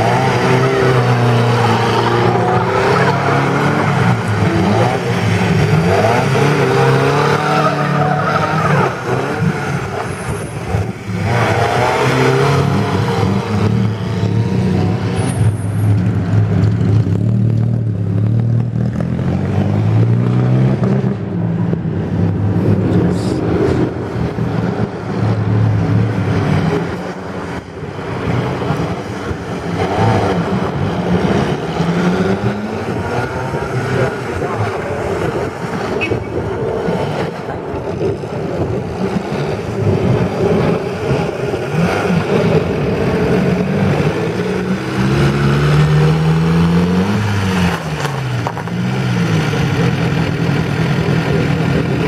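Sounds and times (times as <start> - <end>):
small car engine revving: 0.0 - 10.1, 38.0 - 52.0.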